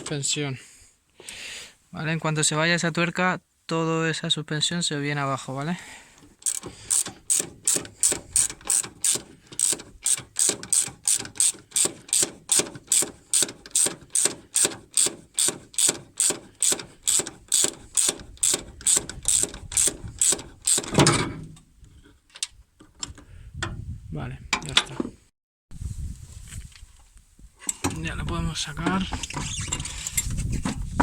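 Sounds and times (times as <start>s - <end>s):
ratchet wrench clicking: 6.4s - 20.9s.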